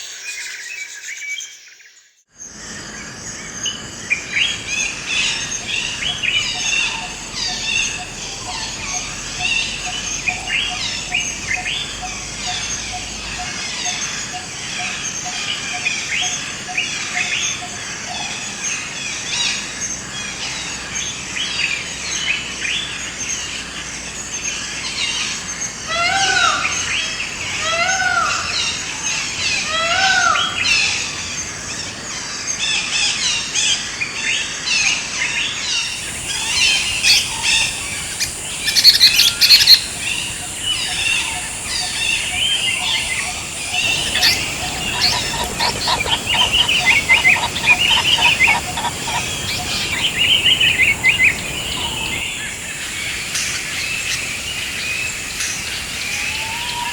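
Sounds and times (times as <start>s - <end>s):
forest birds chirping: 0.0s - 56.9s
loud arching bird calls: 3.5s - 18.5s, 35.6s - 56.9s
bird repeating low note: 35.9s - 52.2s.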